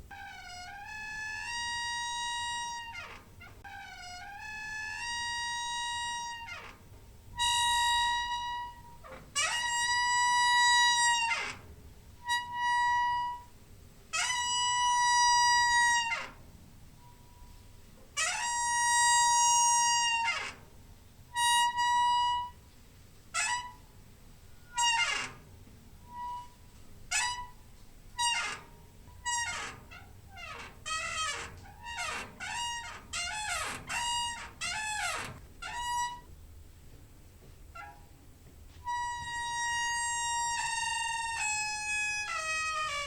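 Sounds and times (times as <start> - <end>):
squeaky door hinge creaking: 0.0 - 22.6, 23.3 - 36.4, 37.7 - 38.2, 38.8 - 43.0.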